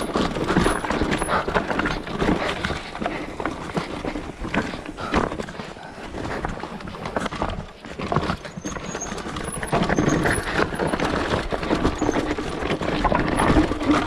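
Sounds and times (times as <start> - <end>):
mountain bike rattling over rocks: 0.0 - 14.0.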